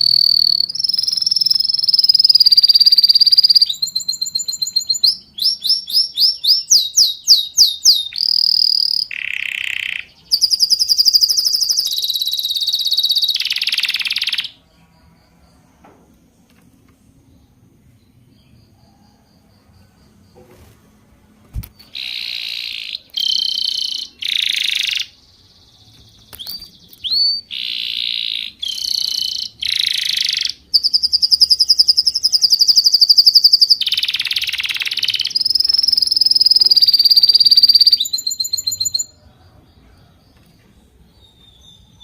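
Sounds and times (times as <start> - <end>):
rapid high bird trill: 21.8 - 25.3, 26.3 - 39.2.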